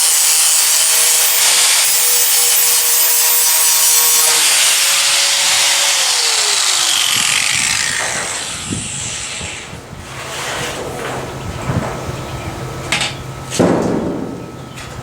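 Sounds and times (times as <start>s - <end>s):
high-pitched motor whine: 0.0s - 9.9s
power tool grinding steel: 0.0s - 10.6s.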